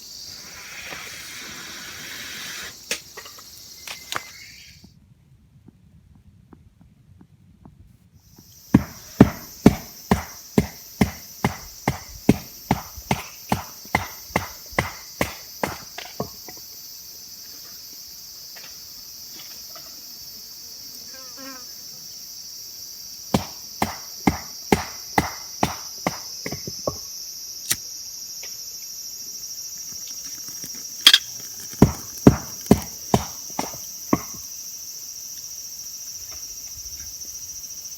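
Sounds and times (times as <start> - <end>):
high-pitched insect chorus: 0.0 - 4.9, 8.2 - 37.9
sharp chopping knocks: 8.7 - 15.8, 23.4 - 26.6, 31.1 - 34.4.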